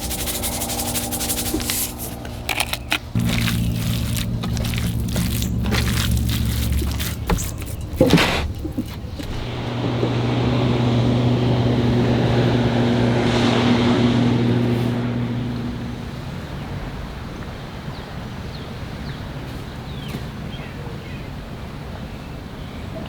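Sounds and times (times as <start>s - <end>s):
low engine hum: 0.0s - 19.1s.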